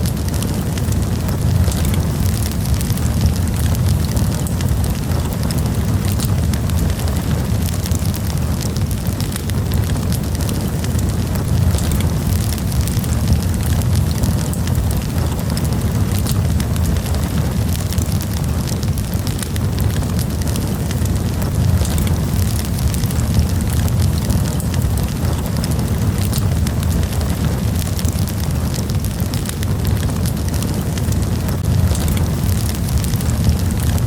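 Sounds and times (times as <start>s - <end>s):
campfire flames rumbling: 0.0s - 34.0s
fire crackling and popping: 0.0s - 34.0s.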